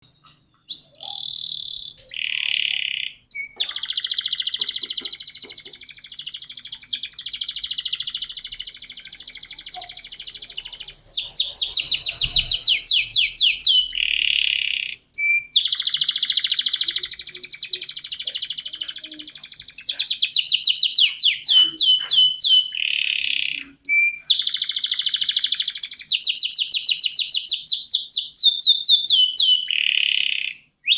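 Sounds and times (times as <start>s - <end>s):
canary singing with trills: 0.0s - 30.9s.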